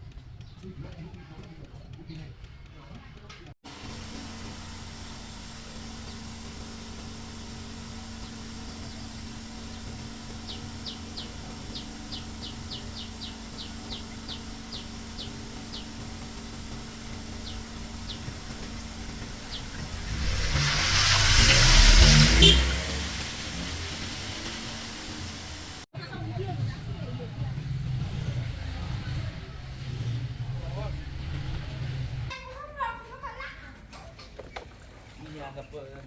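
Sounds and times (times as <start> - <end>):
bird chirping: 17.3 - 22.8
vehicle passing by: 18.1 - 25.9.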